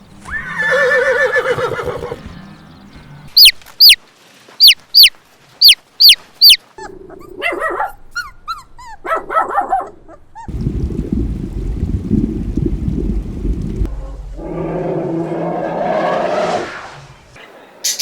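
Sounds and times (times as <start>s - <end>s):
small squeaks and cries: 3.4s - 4.0s, 4.6s - 6.9s.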